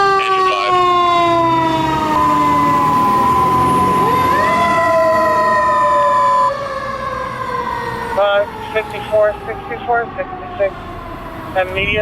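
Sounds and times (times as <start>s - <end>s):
fire engine mechanical siren: 0.0s - 12.0s
steady high single tone: 2.2s - 4.3s.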